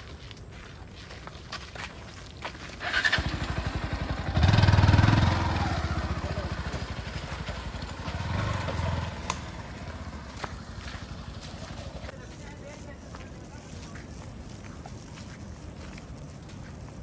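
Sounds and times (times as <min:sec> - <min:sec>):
vehicle engine starting and revving: 0:02.8 - 0:12.1.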